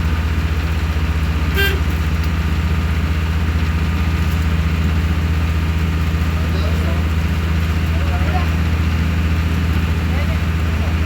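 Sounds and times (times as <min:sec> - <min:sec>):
ferry diesel engine throbbing: 0:00.0 - 0:11.0.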